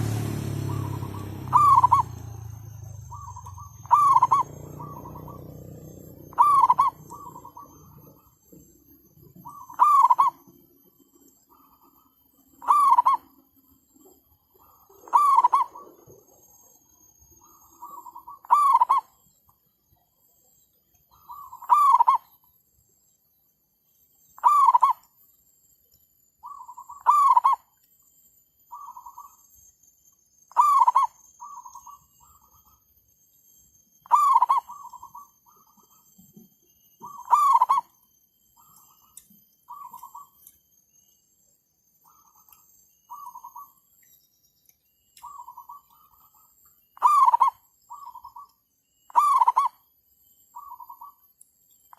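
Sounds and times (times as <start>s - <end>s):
doves cooing: 0.0s - 8.3s, 9.3s - 10.4s, 12.6s - 13.3s, 14.6s - 16.4s, 17.5s - 19.1s, 21.2s - 22.2s, 24.4s - 25.0s, 26.4s - 27.6s, 34.0s - 36.0s, 37.0s - 37.9s, 47.0s - 48.5s, 49.1s - 49.8s.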